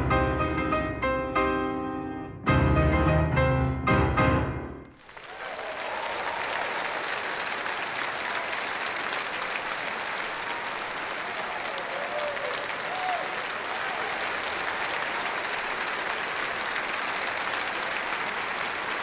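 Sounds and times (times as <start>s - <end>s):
audience applause: 4.9s - 19.0s.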